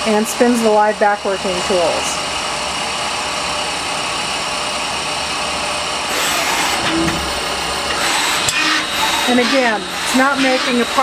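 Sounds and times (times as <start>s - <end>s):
lathe whirring: 1.0s - 11.0s.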